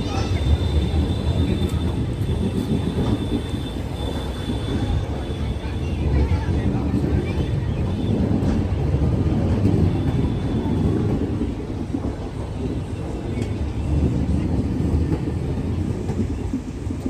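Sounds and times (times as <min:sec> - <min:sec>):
train coach droning: 0:00.0 - 0:07.2
train wheels on rails: 0:00.0 - 0:17.0.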